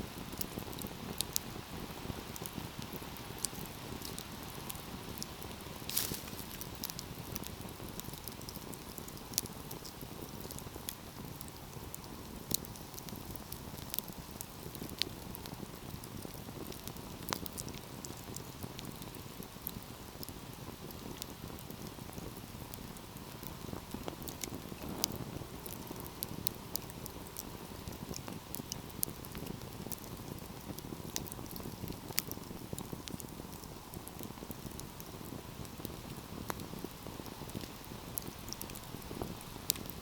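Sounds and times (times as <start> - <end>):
wood fire crackling: 0.0 - 40.0
low rush of burning: 0.2 - 17.4.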